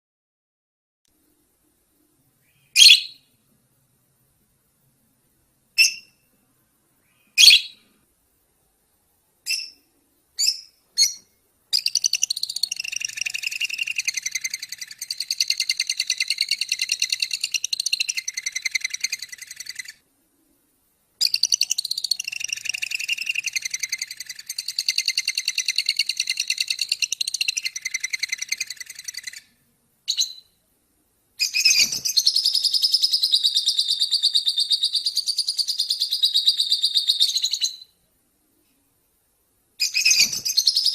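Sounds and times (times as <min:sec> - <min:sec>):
small songbird trilling: 0:02.5 - 0:03.2, 0:05.8 - 0:06.2, 0:07.1 - 0:07.8, 0:09.5 - 0:20.0, 0:21.2 - 0:29.5, 0:31.4 - 0:37.9, 0:39.8 - 0:40.9.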